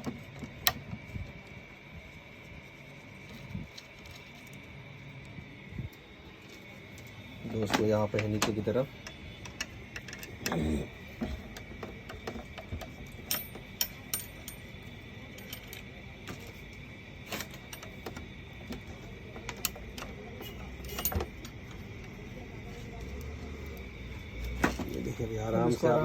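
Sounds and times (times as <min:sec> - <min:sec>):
small parts clicking and clinking: 0:06.4 - 0:25.1.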